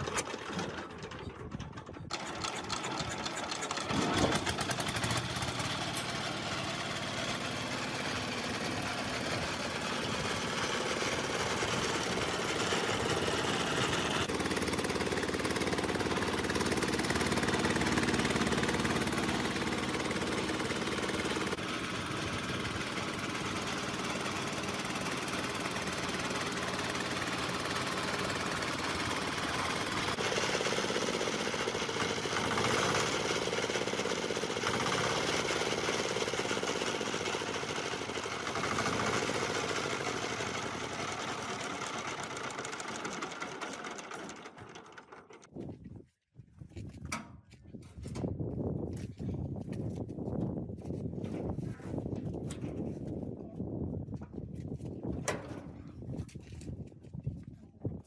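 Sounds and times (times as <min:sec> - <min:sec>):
diesel engine knocking: 0:00.2 - 0:45.5.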